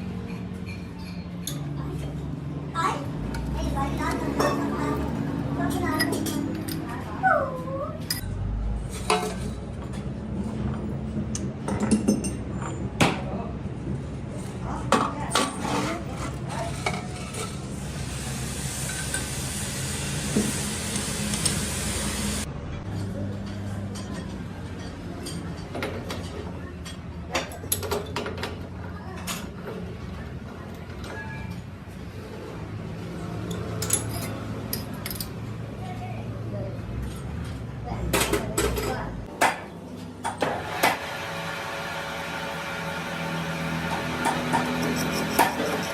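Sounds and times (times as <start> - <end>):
welding arc crackling hiss: 18.0 - 22.5.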